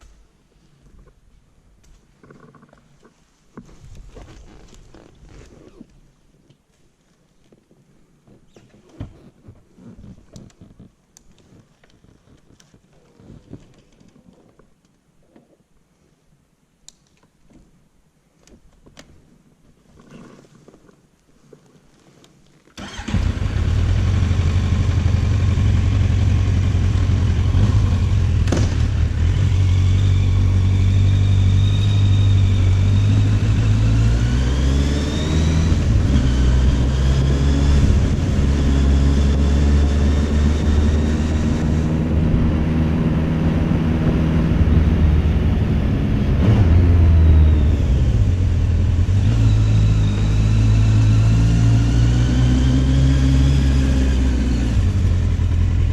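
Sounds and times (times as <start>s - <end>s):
motorcycle engine revving: 22.8s - 55.9s.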